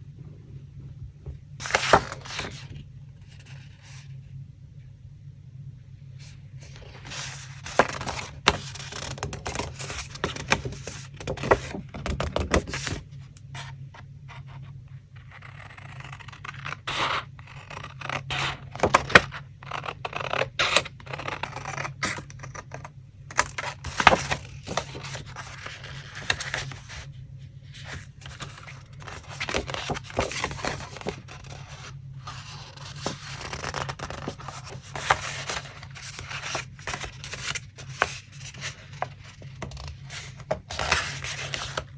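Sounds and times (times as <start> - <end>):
steady low hum: 0.0 - 41.9
paper rustling and scraping: 1.6 - 4.0, 6.2 - 13.8, 23.3 - 41.9.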